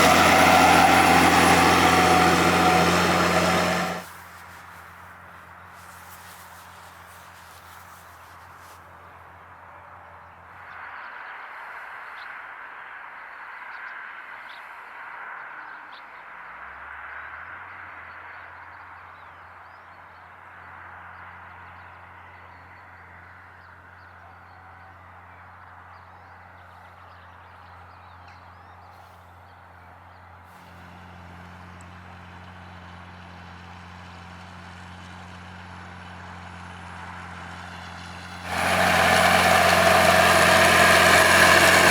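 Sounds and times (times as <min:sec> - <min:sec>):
rushing noise: 0:00.0 - 0:04.1
tractor engine running: 0:00.0 - 0:08.8, 0:30.6 - 0:41.9.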